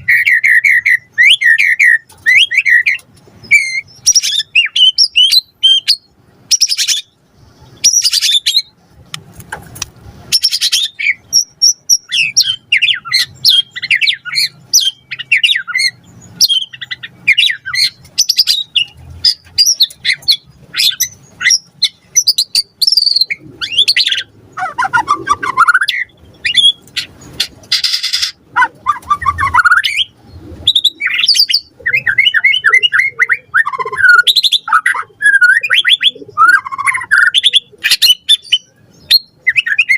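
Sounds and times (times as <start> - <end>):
bird singing varied song: 0.0 - 9.0, 10.2 - 39.9.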